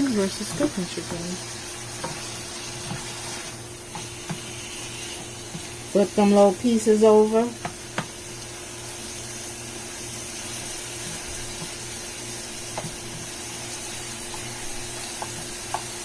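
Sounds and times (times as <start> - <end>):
chicken sizzling in oil: 0.0 - 16.0
utensil clicking against pan: 7.6 - 8.5, 12.7 - 13.3, 14.2 - 16.0.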